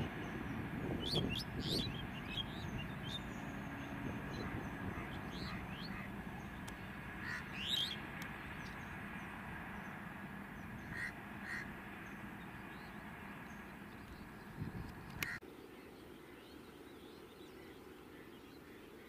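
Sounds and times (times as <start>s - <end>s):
distant train rumble: 0.0s - 15.4s
birds chirping: 0.0s - 19.0s.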